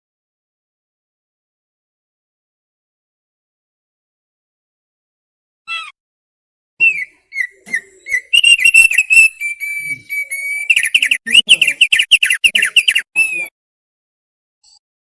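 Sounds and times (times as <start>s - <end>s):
bird singing whistled notes: 6.8s - 13.5s.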